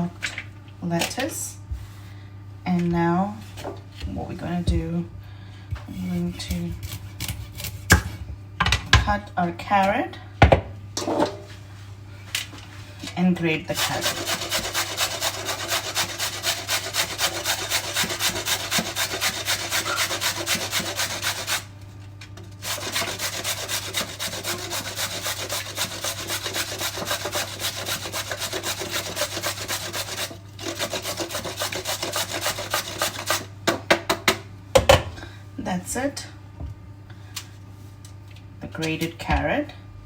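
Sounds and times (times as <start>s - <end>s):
carrot rasping on grater: 5.9s - 8.0s, 13.7s - 21.7s, 22.6s - 33.5s.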